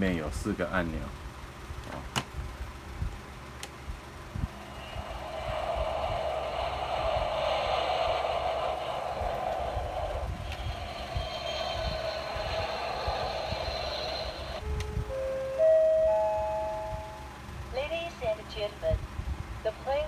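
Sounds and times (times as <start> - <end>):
toy jet engine sound effect: 4.4 - 14.6.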